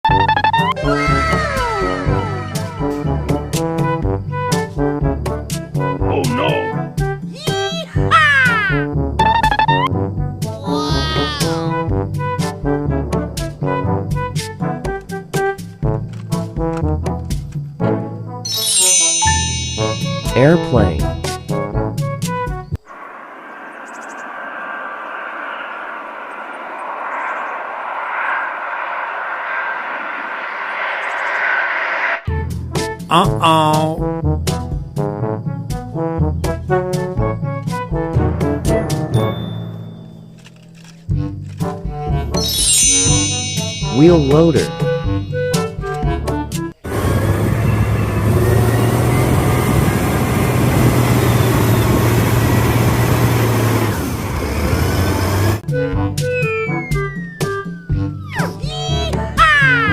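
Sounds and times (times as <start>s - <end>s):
airplane engine rushing: 0.4s - 4.9s, 22.8s - 33.1s, 46.8s - 59.9s.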